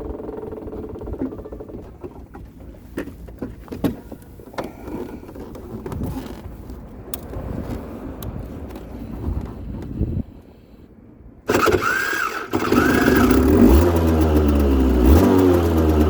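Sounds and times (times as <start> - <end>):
two-stroke engine: 0.0 - 2.3, 11.5 - 16.0.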